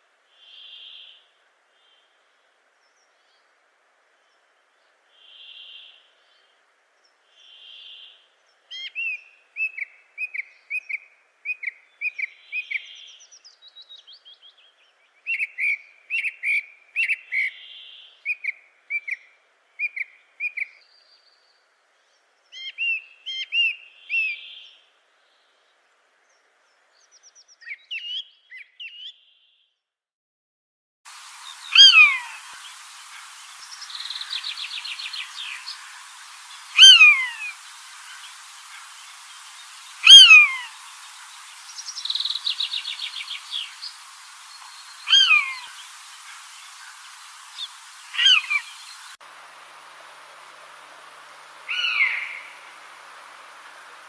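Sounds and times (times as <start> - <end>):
bird falling call: 31.6 - 41.0, 41.6 - 49.1, 51.5 - 54.0.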